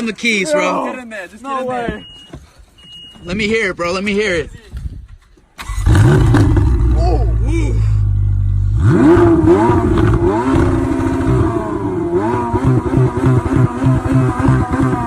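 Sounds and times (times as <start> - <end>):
car engine revving: 5.6 - 15.0.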